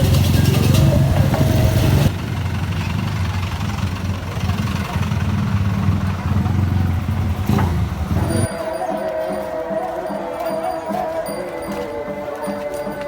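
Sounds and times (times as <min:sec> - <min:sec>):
vehicle engine rumbling: 0:00.0 - 0:08.6
music: 0:08.2 - 0:13.0.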